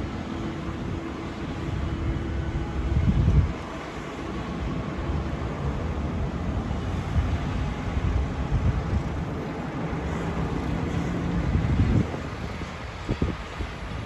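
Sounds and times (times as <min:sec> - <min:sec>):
street traffic passing: 0:00.0 - 0:14.0
vehicle engine hum: 0:00.0 - 0:14.0
wind buffeting microphone: 0:00.0 - 0:14.0.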